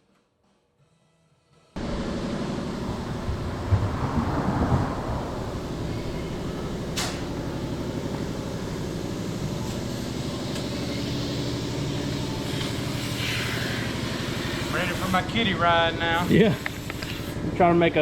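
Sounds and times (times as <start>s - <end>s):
car engine idling: 1.8s - 9.7s.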